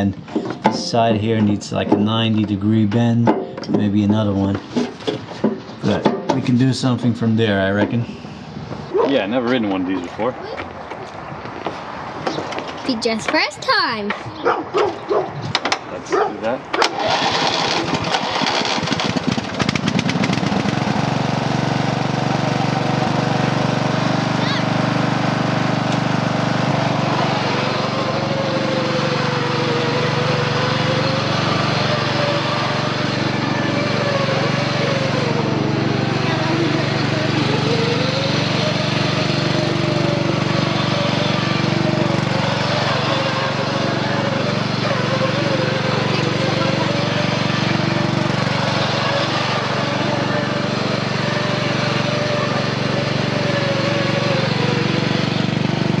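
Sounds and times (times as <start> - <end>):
small engine running: 0.0 - 10.6, 16.1 - 56.0.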